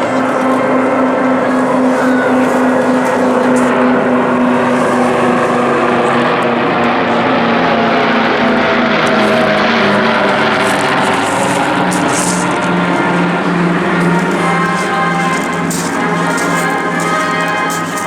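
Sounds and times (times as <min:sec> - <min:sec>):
piston aircraft engines droning: 0:00.0 - 0:18.0.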